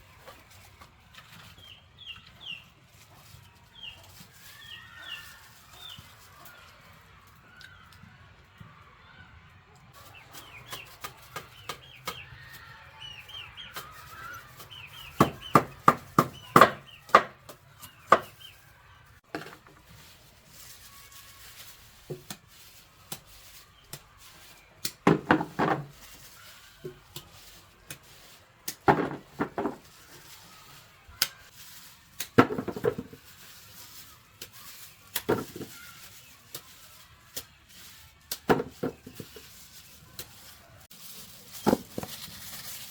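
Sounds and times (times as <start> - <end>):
birds chirping: 10.0 - 19.2.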